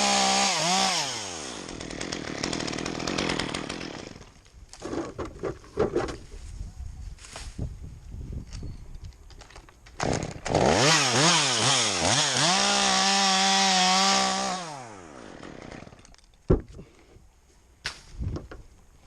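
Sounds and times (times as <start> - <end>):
chainsaw engine revving: 0.0 - 4.2, 10.0 - 16.0.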